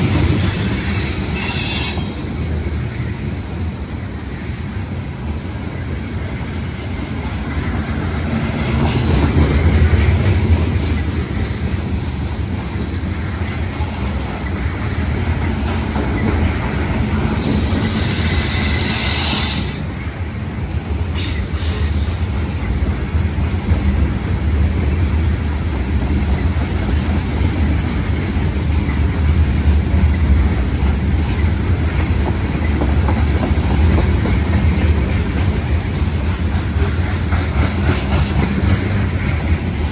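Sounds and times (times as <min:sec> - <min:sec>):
freight train wheels clattering: 0:00.0 - 0:39.9
high-pitched wheel squeal: 0:00.4 - 0:02.3, 0:17.4 - 0:20.0.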